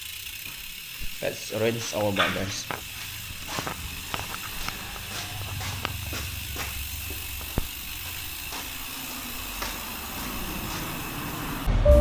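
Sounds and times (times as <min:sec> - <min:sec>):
water spraying on bicycle: 0:00.0 - 0:11.7.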